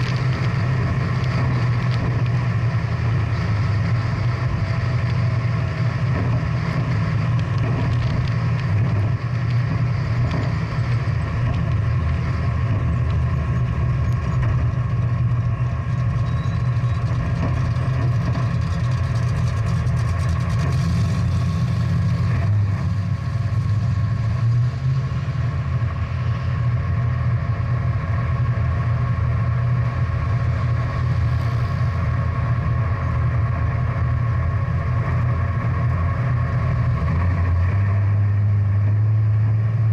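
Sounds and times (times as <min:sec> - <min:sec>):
car engine running steadily: 0:00.0 - 0:39.9.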